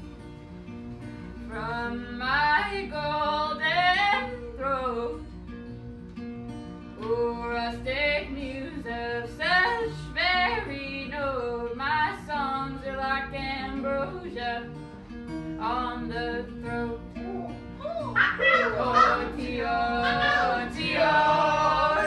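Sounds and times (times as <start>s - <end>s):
plucked acoustic guitar: 0.0s - 22.0s
person singing: 17.2s - 22.0s.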